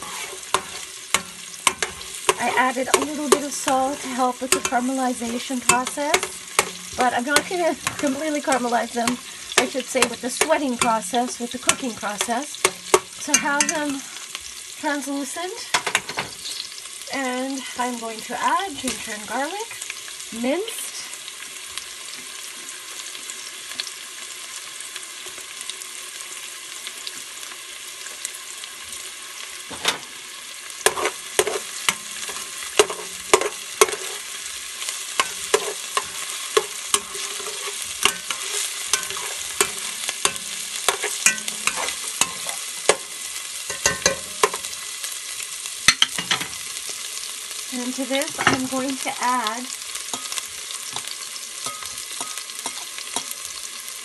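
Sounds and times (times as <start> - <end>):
utensil scraping and knocking pot: 0.0 - 13.9, 30.8 - 34.3, 35.2 - 43.1
onions sizzling in hot oil: 0.0 - 54.0.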